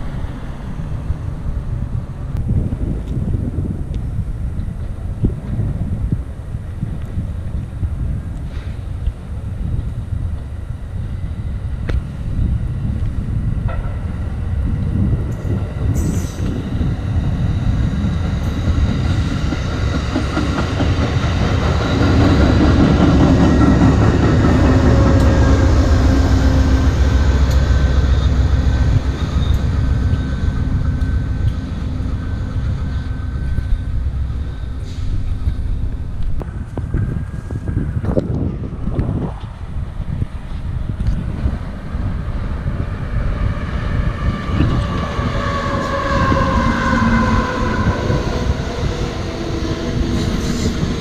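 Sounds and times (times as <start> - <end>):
train wheel clatter and rumble: 0.0 - 51.0
wind on microphone: 0.0 - 51.0.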